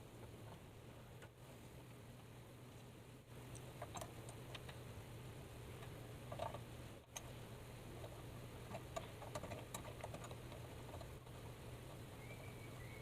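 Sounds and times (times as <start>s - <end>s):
low steady hum: 0.0s - 13.0s
light clicks and taps: 3.5s - 4.8s, 8.0s - 12.0s.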